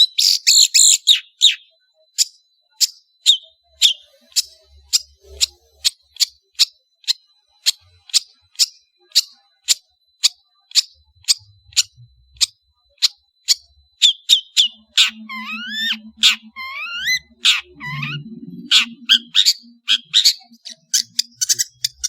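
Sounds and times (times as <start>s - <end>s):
shrike calling sharp notes: 14.1s - 22.0s.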